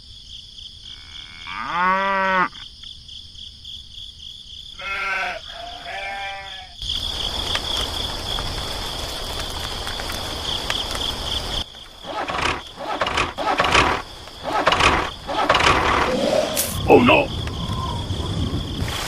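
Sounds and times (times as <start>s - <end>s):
farm animal bleating: 4.8s - 6.8s.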